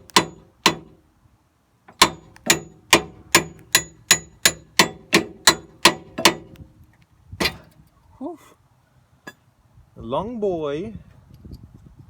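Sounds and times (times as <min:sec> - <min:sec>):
metal hammering on metal: 0:00.0 - 0:01.0, 0:02.0 - 0:06.6, 0:07.4 - 0:07.7.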